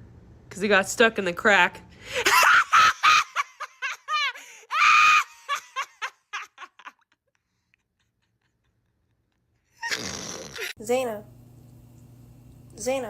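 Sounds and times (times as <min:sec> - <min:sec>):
person laughing: 0:02.2 - 0:10.8
high squeal of laughter: 0:02.3 - 0:07.1, 0:09.7 - 0:10.8.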